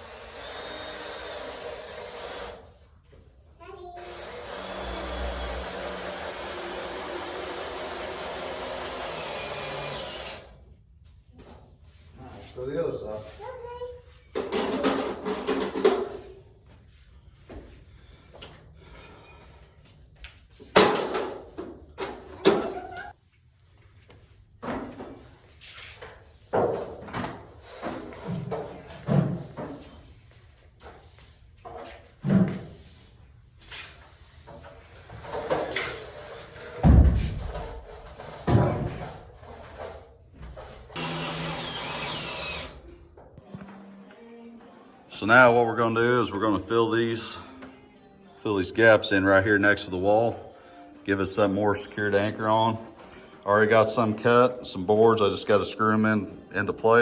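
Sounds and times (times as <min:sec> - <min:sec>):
cordless drill running: 0:00.0 - 0:02.6, 0:04.0 - 0:10.5, 0:40.9 - 0:42.8.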